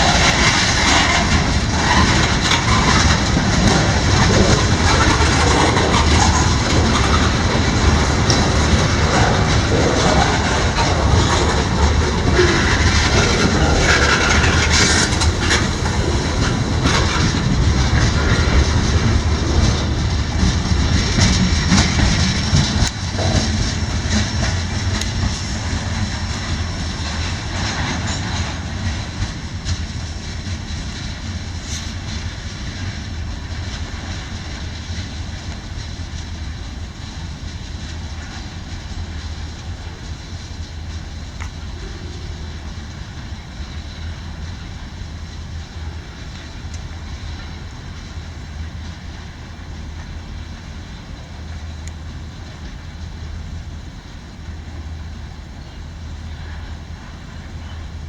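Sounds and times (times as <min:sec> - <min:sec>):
sharp rail clicks: 0:00.0 - 0:53.8
freight train rumbling past: 0:00.0 - 0:58.0.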